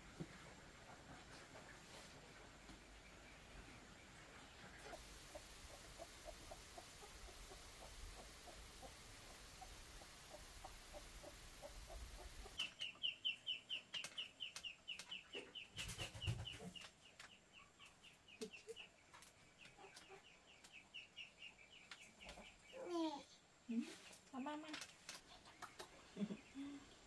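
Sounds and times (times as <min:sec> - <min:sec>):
steady hiss: 0:00.0 - 0:12.7
bird chirping: 0:02.9 - 0:22.9.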